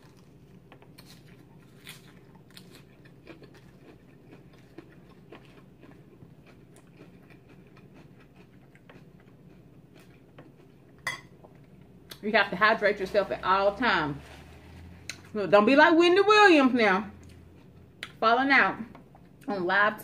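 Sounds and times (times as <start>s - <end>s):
chewing crunchy salad: 0.0s - 12.2s, 17.2s - 18.2s.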